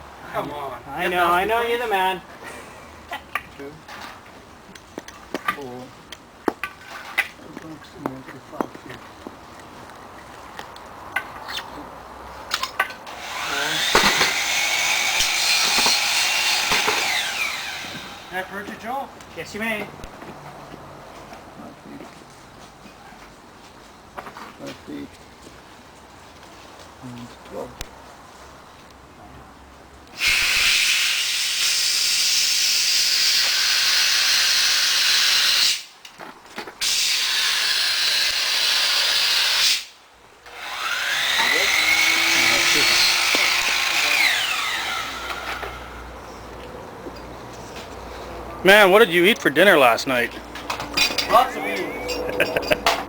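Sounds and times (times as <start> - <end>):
rushing hiss: 30.2 - 36.0.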